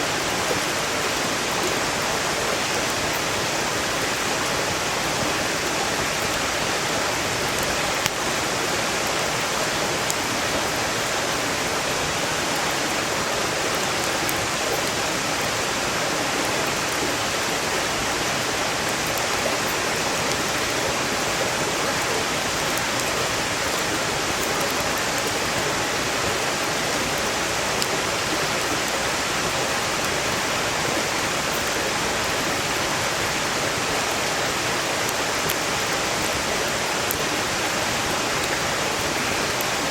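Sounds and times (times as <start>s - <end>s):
stream rushing: 0.0s - 39.9s
firewood crackling: 0.1s - 8.6s, 35.0s - 39.6s.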